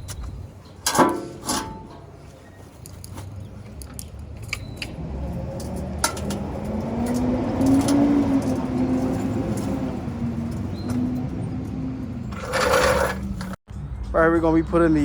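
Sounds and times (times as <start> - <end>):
vehicle engine running: 2.1 - 13.6.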